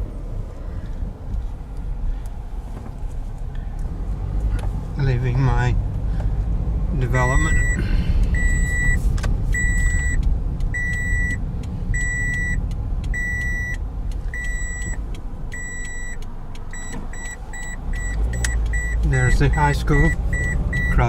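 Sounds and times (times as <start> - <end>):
engine and road rumble: 0.0 - 21.0
car warning chime beeping: 7.1 - 21.0.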